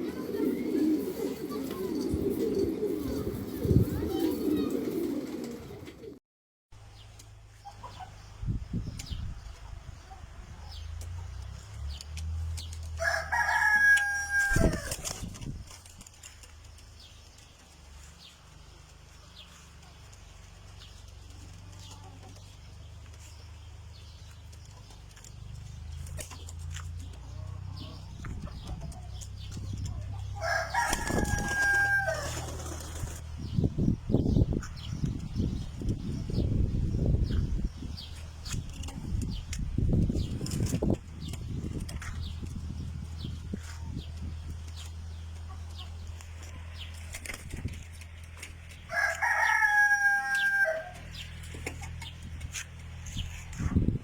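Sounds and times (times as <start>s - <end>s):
rooster crowing: 13.0s - 14.9s, 30.4s - 32.5s, 48.9s - 51.1s.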